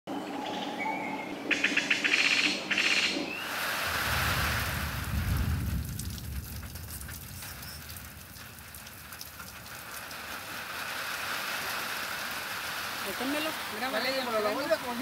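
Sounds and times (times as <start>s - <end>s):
rain falling: 3.4s - 15.0s
low rumble: 3.9s - 9.9s.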